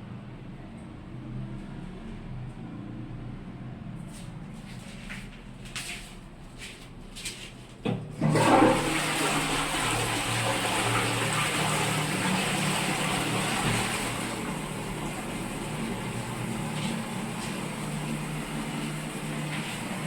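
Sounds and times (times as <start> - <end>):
water rushing into toilet bowl: 8.2 - 20.0.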